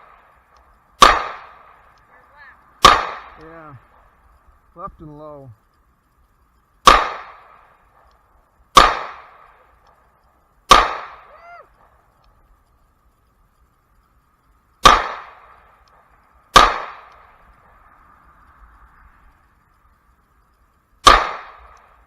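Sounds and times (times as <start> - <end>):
pistol shots: 1.0 - 1.9, 2.8 - 4.0, 6.8 - 8.1, 8.7 - 9.6, 10.7 - 11.3, 14.8 - 15.6, 16.5 - 17.3, 21.0 - 22.0.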